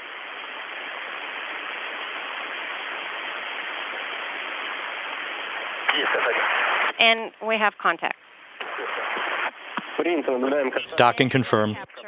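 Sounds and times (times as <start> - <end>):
radio static hiss: 0.0 - 12.0
radio transmission click: 5.5 - 7.2, 8.6 - 12.0.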